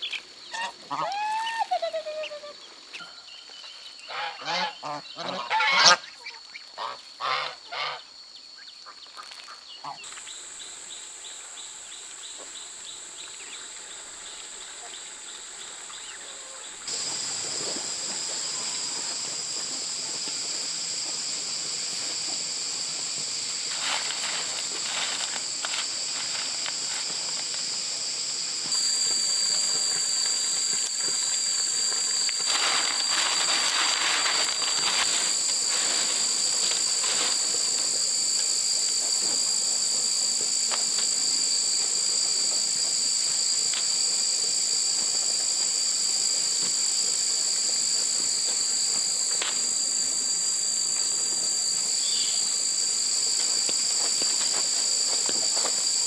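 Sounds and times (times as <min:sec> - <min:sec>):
insects droning high-pitched: 0:00.0 - 0:56.0
rustling noise bursts: 0:16.9 - 0:38.1.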